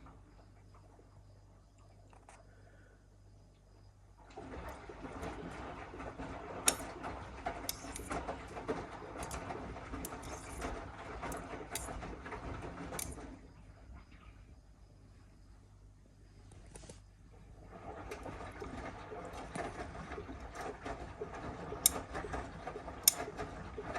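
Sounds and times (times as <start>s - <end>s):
wet laundry sloshing and knocking: 4.2s - 14.4s, 17.5s - 23.9s
washing machine drum turning: 4.4s - 13.4s, 18.0s - 23.9s.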